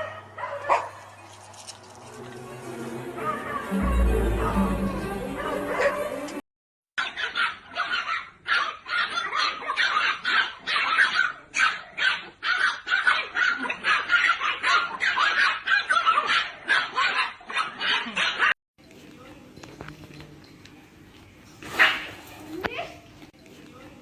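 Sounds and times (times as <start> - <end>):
dog barking rapidly: 0.0 - 1.0, 7.0 - 18.5, 21.8 - 22.2.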